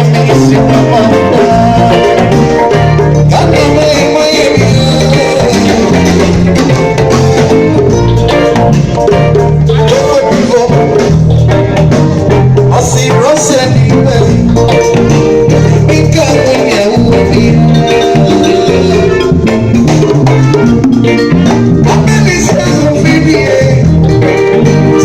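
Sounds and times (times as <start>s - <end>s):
person singing: 0.0s - 6.6s, 9.7s - 11.2s, 12.7s - 19.5s, 21.8s - 25.0s
heavy bass line: 0.0s - 25.0s
drum strokes: 0.1s - 23.3s.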